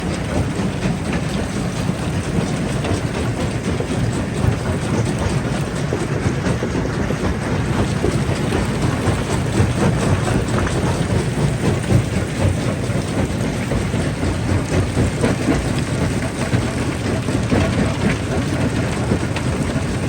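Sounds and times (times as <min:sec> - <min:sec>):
stone crusher churning: 0:00.1 - 0:20.0.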